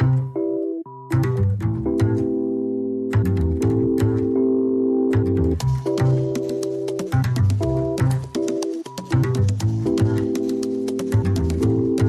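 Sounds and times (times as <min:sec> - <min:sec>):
sustained chords: 0:00.0 - 0:08.5
bass line: 0:00.0 - 0:10.5, 0:11.1 - 0:12.0
steady percussive beat: 0:05.5 - 0:12.0.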